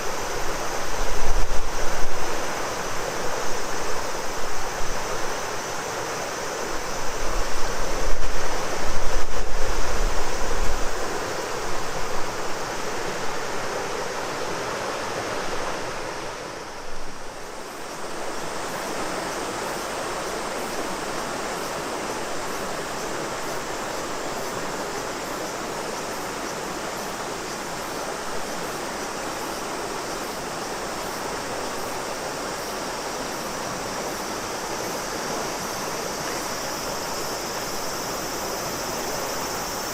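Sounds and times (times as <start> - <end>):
cicadas shrilling: 0.0 - 39.9
river water rushing: 0.0 - 39.9
wind on microphone: 6.6 - 14.2.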